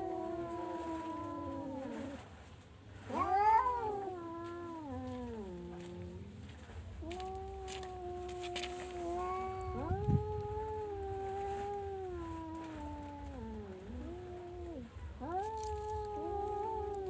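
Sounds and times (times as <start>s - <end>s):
cat meowing: 3.1s - 6.2s, 7.0s - 17.0s.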